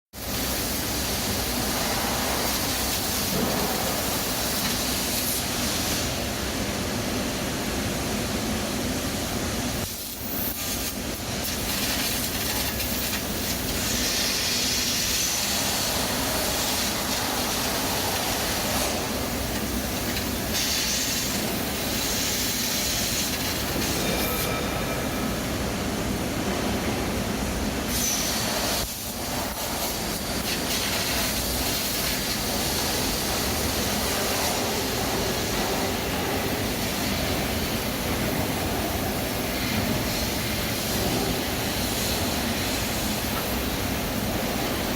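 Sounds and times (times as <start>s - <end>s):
plasma cutter hissing: 0.2s - 6.2s, 9.6s - 25.4s, 27.8s - 44.9s.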